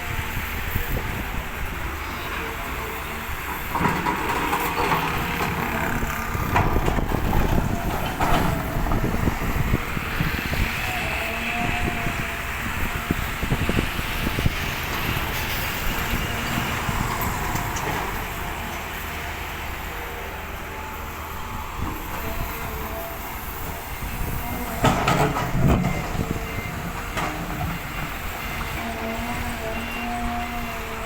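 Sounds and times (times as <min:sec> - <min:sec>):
loud clanking and rattling: 0:03.5 - 0:09.3, 0:24.8 - 0:26.3.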